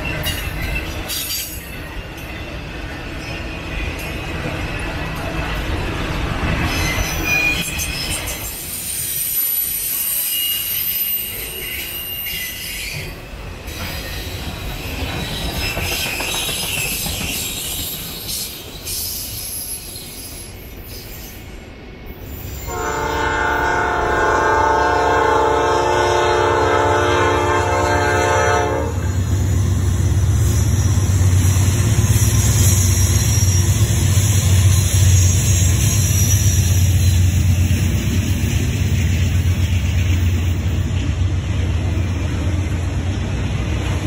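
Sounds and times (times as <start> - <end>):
train wheels clacking on rails: 0.0 - 21.3, 29.0 - 44.0
locomotive air horn blast: 22.7 - 29.1.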